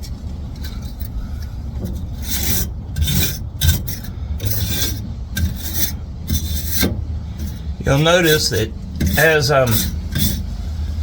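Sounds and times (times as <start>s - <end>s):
wire brush scraping metal: 1.9s - 10.6s.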